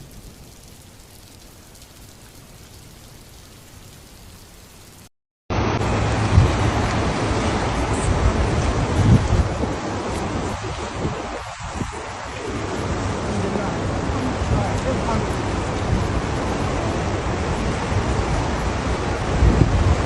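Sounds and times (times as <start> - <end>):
heavy rain hissing: 0.0 - 19.7
rushing rain and water: 0.0 - 20.0.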